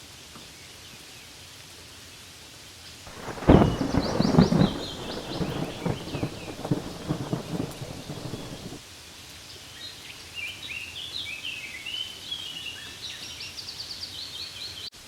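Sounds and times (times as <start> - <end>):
soft rain hiss: 0.0 - 13.2
songbird chirping: 3.1 - 8.8.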